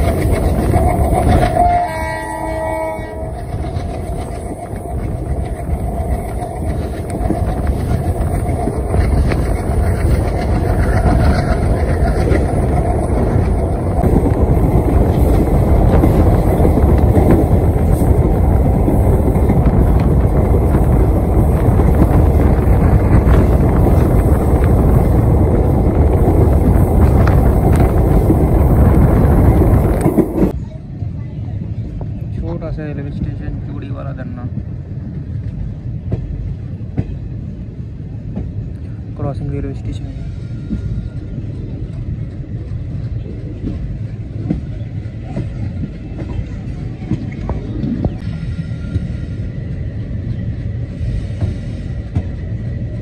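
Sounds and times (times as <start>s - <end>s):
train wheels rumbling on track: 0.0s - 53.0s
rushing air: 3.5s - 30.6s.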